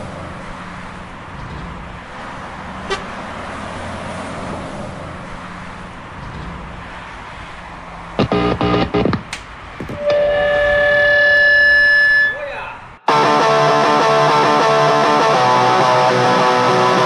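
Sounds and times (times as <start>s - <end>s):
traffic and road noise: 0.0s - 17.0s
short horn toot: 9.9s - 12.9s.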